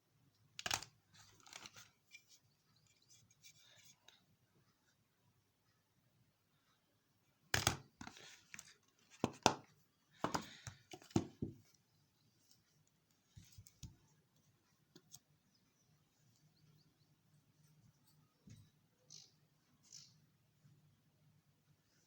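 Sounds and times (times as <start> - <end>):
packaging clicks and knocks: 9.2 - 11.6.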